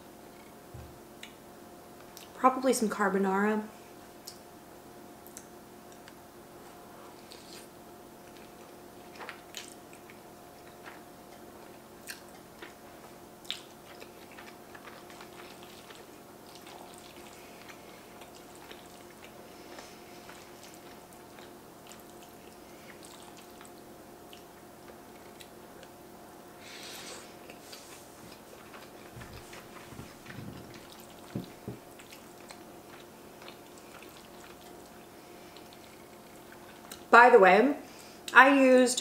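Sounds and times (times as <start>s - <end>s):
faint steady hum: 0.0s - 39.0s
wet chewing sounds: 5.2s - 26.0s, 26.9s - 37.1s.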